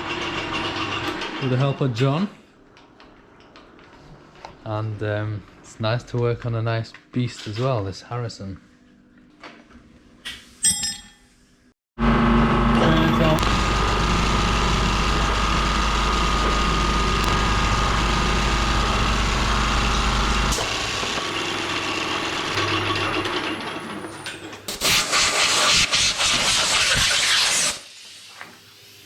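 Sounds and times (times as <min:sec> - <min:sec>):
metalworking lathe humming: 0:12.0 - 0:24.0
lathe winding down whine: 0:12.0 - 0:24.2.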